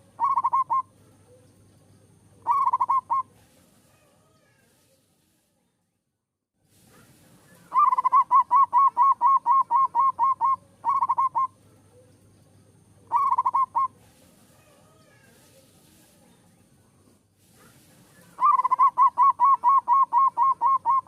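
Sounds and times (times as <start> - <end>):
dove cooing: 0.0 - 1.5, 2.4 - 3.4, 7.5 - 12.1, 13.0 - 14.1, 18.1 - 21.0.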